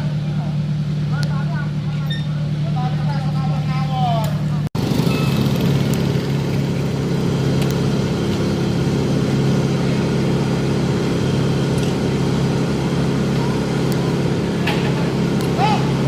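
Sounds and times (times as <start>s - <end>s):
heavy diesel engine droning: 0.0s - 16.0s.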